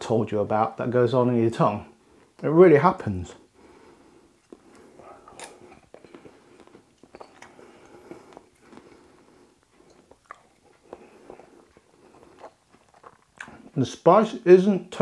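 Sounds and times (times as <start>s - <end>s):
person chewing: 3.8s - 13.8s.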